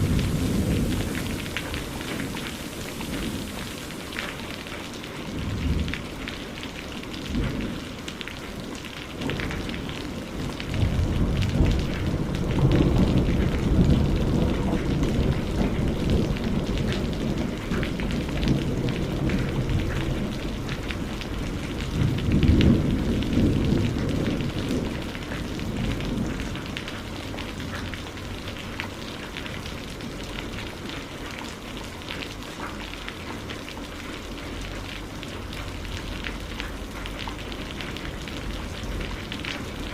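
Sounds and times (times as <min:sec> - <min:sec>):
low rolls of thunder: 0:00.0 - 0:03.7, 0:05.3 - 0:06.2, 0:09.2 - 0:27.8
steady rain: 0:00.0 - 0:39.9.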